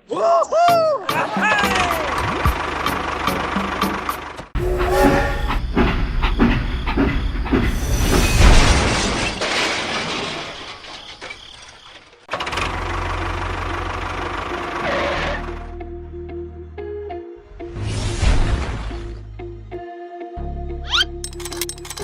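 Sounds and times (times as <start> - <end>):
low hum: 4.6 - 8.1
model machines rattling: 21.2 - 22.0.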